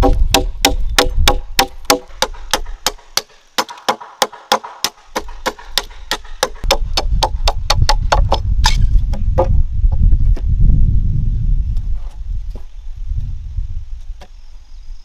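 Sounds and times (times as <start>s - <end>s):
blade chopping into wood: 0.0s - 9.6s.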